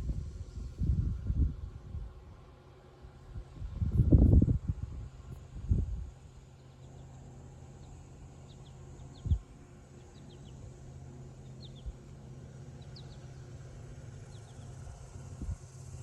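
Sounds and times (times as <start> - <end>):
steady low hum: 0.0 - 16.0
faint bird chirps: 12.7 - 13.4.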